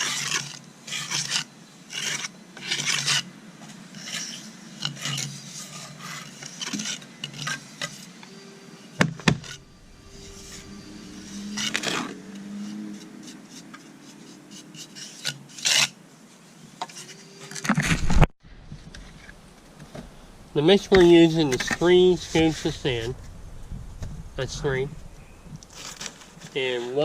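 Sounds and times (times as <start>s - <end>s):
hand tool scraping: 0.0s - 3.3s, 3.9s - 18.0s, 20.6s - 23.2s, 24.4s - 27.0s.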